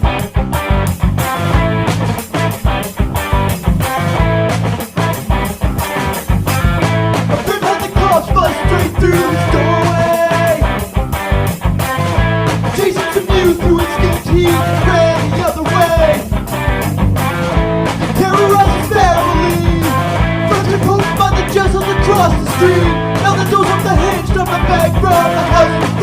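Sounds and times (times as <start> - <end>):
bass guitar: 0.0 - 26.0
drums: 0.0 - 26.0
electric guitars: 0.0 - 26.0
person singing: 7.3 - 10.9, 12.8 - 16.3, 18.1 - 26.0.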